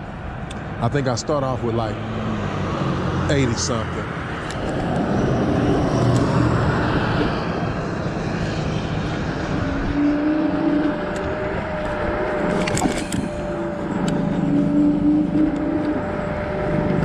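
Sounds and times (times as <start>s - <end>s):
road noise: 0.0s - 17.0s
wind buffeting microphone: 2.5s - 17.0s
steady high tone: 8.8s - 17.0s.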